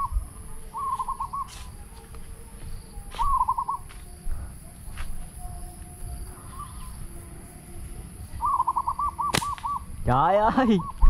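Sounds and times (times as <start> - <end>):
low rumble of wind: 0.0 - 11.0
bird whistled notes: 0.7 - 1.8, 3.1 - 3.9, 8.4 - 10.0, 10.6 - 11.0.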